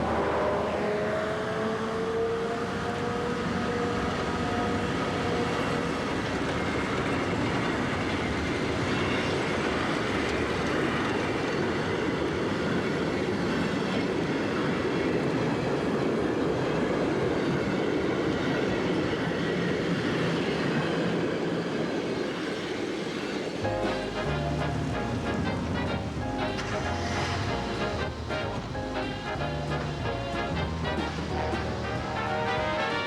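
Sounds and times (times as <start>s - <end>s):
train wheels rolling on track: 0.0s - 33.0s.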